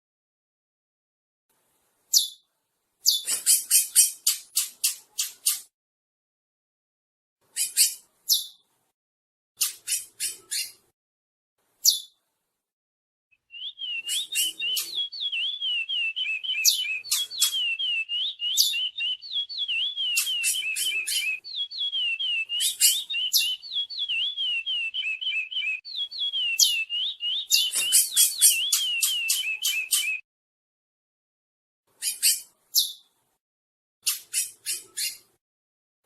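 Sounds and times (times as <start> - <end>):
finch warbling song: 13.5 - 30.2.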